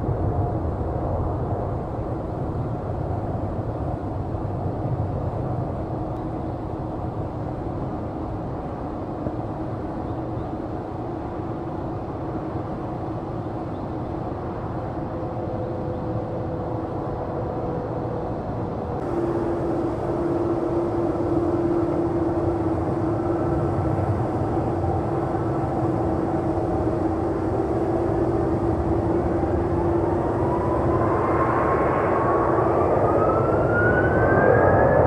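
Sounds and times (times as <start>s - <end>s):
jet engines rumbling: 0.0s - 35.0s
jet engine whine rising: 14.3s - 35.0s.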